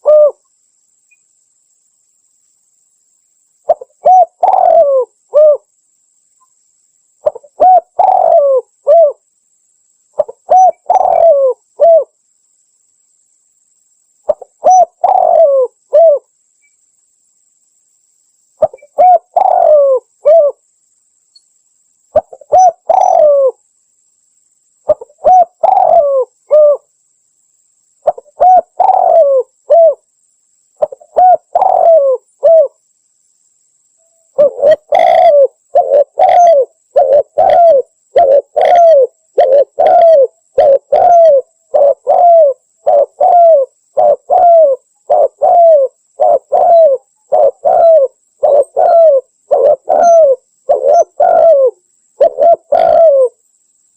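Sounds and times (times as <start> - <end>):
dove cooing: 0.0 - 0.4, 3.7 - 5.7, 7.2 - 9.2, 10.2 - 12.1, 14.3 - 16.3, 18.6 - 20.6, 22.1 - 23.6, 24.9 - 26.9, 28.0 - 30.0, 30.8 - 32.8, 34.3 - 53.4.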